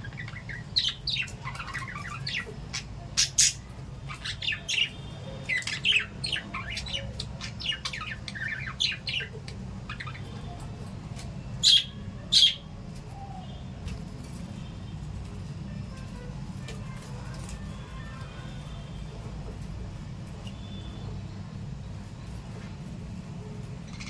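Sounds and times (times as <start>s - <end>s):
steady low hum: 0.0s - 10.4s
parrots chirping: 0.0s - 10.8s, 11.6s - 12.7s.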